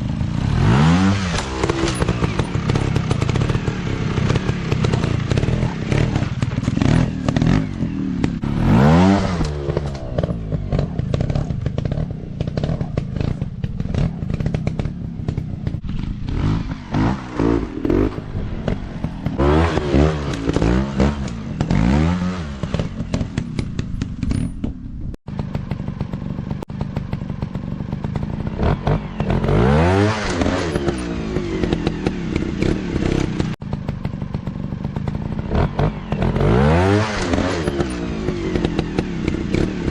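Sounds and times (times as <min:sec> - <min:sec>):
dirt bike engine revving: 0:00.0 - 0:24.4, 0:25.3 - 0:39.9.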